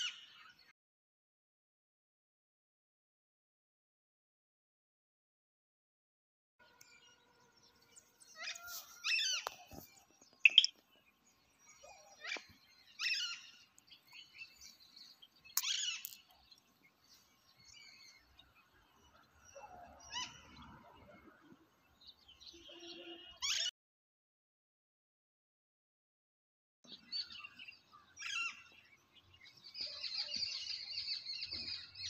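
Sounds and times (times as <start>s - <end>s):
birds chirping and calling: 0.0s - 0.7s, 6.8s - 23.7s, 26.9s - 32.0s.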